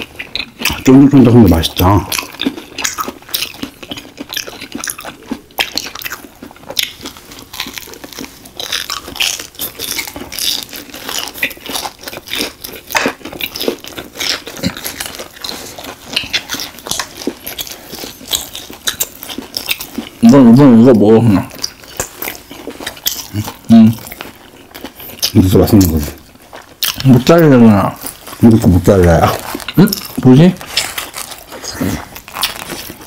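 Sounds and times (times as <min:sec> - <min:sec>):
crunching of crisp food: 0:00.0 - 0:33.0
wet sticky chewing: 0:00.0 - 0:33.0.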